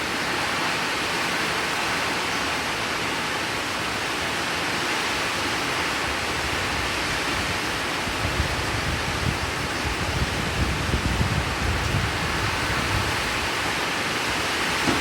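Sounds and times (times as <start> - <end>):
heavy rain: 0.0 - 15.0
low rumbling gusts: 6.0 - 15.0.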